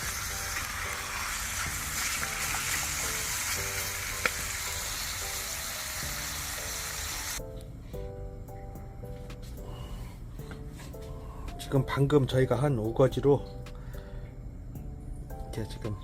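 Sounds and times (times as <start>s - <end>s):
meat sizzling on a grill: 0.0s - 7.4s.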